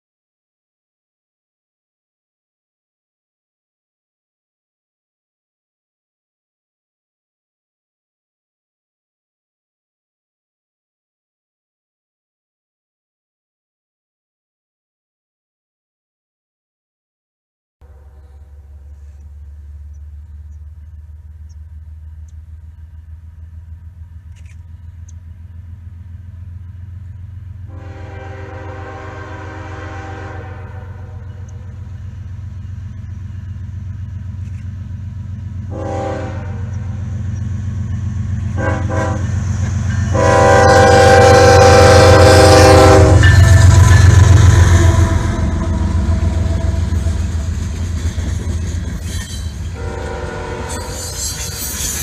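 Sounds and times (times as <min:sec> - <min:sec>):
locomotive engine rumble: 0:17.8 - 0:52.0
locomotive air horn blasts: 0:27.7 - 0:31.7, 0:35.7 - 0:37.0, 0:38.5 - 0:39.4, 0:40.0 - 0:47.5, 0:49.7 - 0:51.8.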